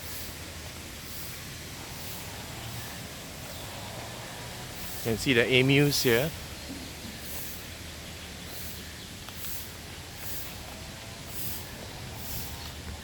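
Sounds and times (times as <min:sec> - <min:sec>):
faint distant bird calls: 0:00.0 - 0:13.0
high thin bird chirp: 0:06.7 - 0:10.6.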